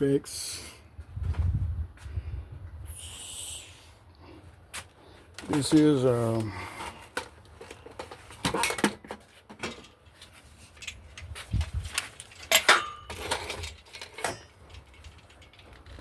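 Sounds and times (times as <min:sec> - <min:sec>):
metal clanks and clinks: 0:07.2 - 0:16.0.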